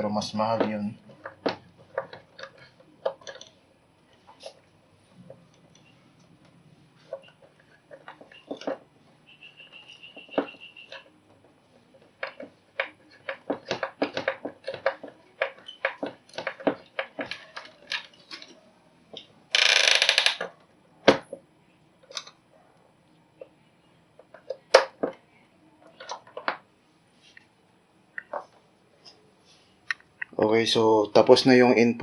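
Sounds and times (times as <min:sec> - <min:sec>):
wires and hand tool clicking: 0:00.5 - 0:03.6, 0:07.1 - 0:08.9, 0:09.6 - 0:21.2, 0:22.0 - 0:22.4.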